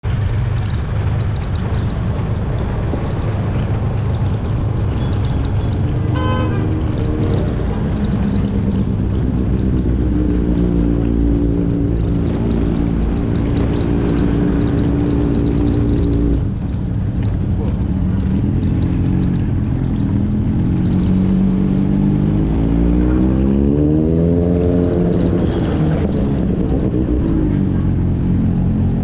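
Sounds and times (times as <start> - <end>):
steady engine hum: 0.0 - 29.0
motorcycle engine and wind rumble: 0.1 - 29.0
vehicle horn toot: 6.1 - 6.9.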